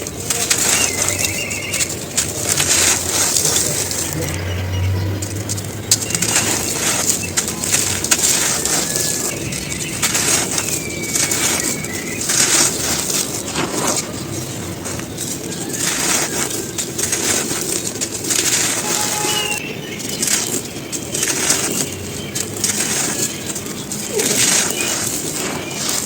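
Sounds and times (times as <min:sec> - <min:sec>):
cones crunching: 0:00.0 - 0:26.0
faint bird call: 0:18.4 - 0:20.5.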